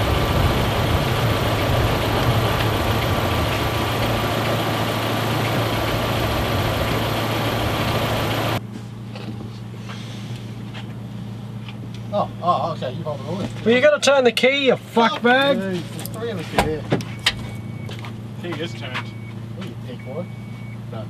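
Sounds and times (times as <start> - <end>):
car engine idling: 0.0 - 8.7.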